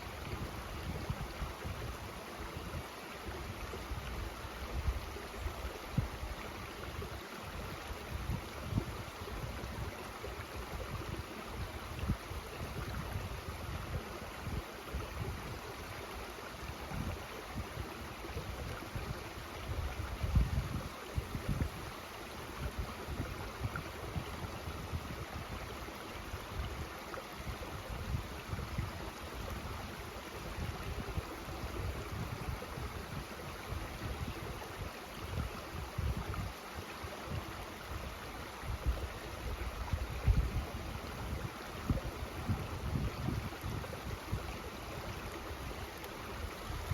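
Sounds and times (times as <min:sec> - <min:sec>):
mountain stream running: 0:00.0 - 0:46.9
wind buffeting microphone: 0:18.4 - 0:21.9, 0:30.5 - 0:36.6, 0:38.7 - 0:44.6.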